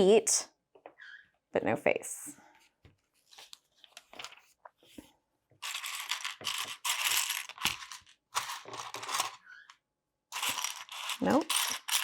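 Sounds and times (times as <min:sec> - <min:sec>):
plastic bricks clattering: 0:05.6 - 0:09.5, 0:10.3 - 0:12.0.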